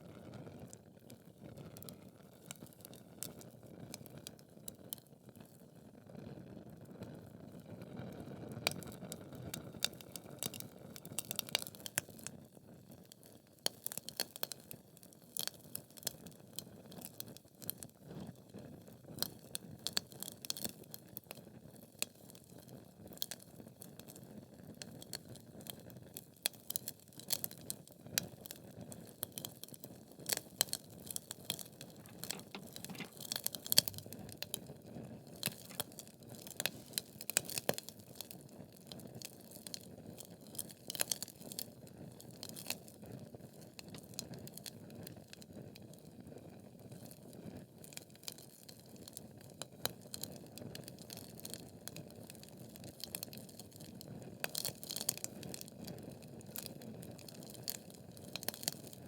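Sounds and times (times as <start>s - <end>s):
logs crackling and popping: 32.0s - 34.5s.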